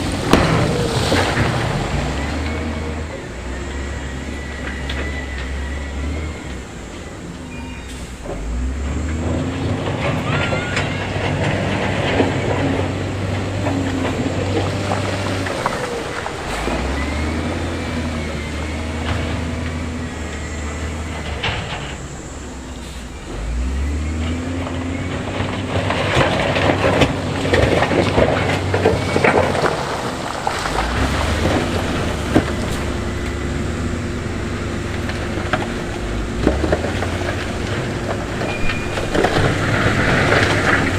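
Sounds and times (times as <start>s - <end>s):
diesel engine revving: 0.0s - 40.9s.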